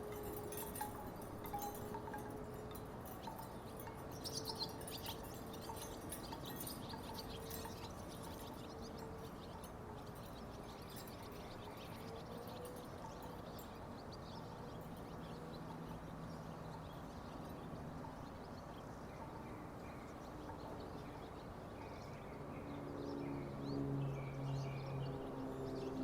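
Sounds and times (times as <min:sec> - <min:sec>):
wooden wind chimes knocking: 0:00.0 - 0:13.9.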